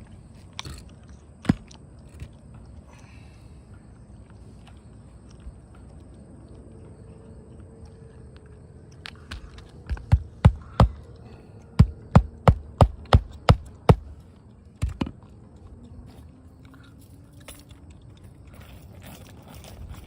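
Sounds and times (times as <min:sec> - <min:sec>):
hammer striking nails: 0:09.9 - 0:11.0, 0:11.8 - 0:14.1.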